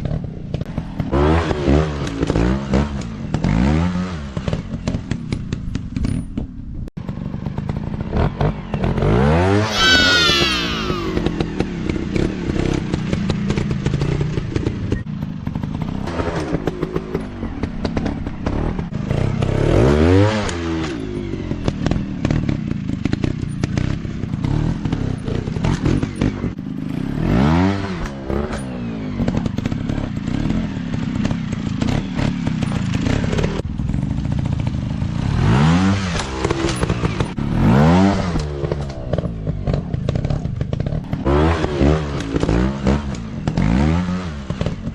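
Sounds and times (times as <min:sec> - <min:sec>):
dirt bike engines revving: 0:07.1 - 0:15.0.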